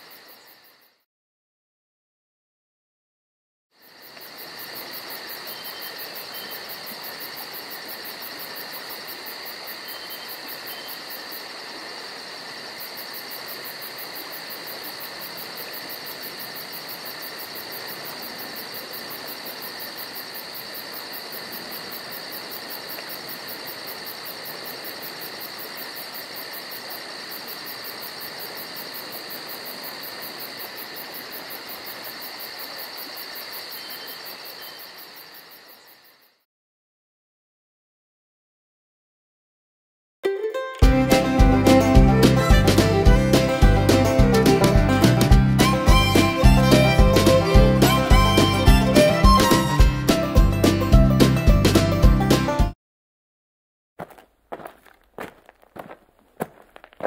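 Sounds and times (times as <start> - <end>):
crickets trilling: 0.0 - 1.0, 3.8 - 36.4, 54.0 - 57.0.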